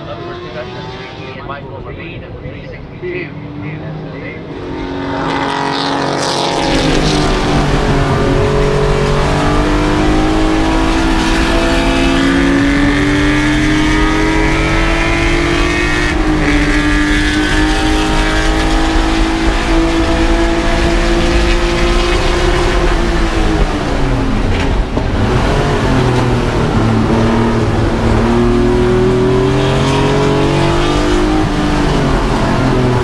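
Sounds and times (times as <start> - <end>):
race car engine revving: 0.0 - 33.0.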